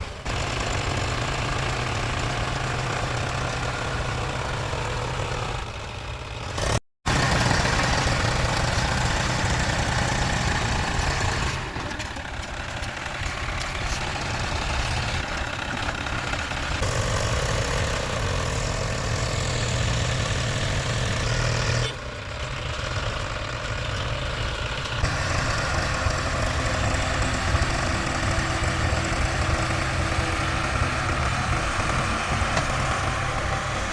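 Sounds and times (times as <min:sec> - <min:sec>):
diesel tractor engine rumbling: 0:00.0 - 0:33.9.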